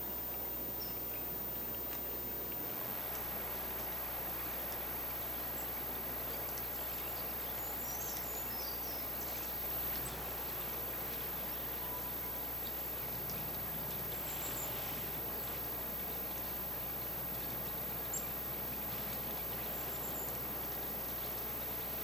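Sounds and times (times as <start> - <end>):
rushing outdoor noise: 1.9 - 22.0
faint high bird chirps: 6.4 - 21.9.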